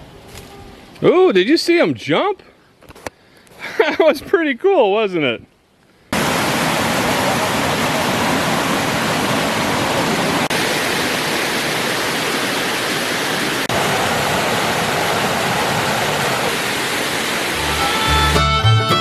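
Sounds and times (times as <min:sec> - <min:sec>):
rushing water: 0:06.2 - 0:19.0.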